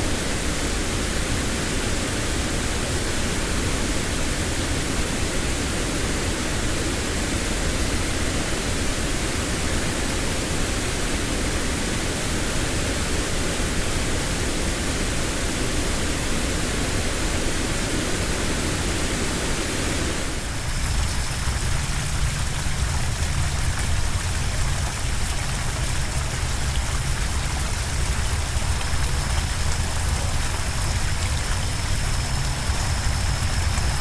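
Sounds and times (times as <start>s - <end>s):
waterfall rushing: 0.0s - 34.0s
thin water sound: 18.8s - 34.0s.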